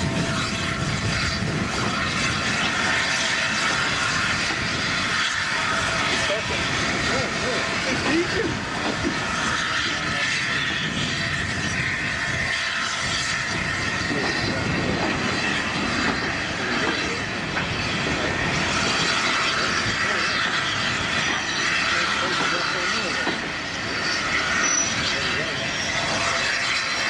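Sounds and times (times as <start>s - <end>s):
steam train rushing: 0.0s - 27.0s
people's voices: 6.1s - 10.6s.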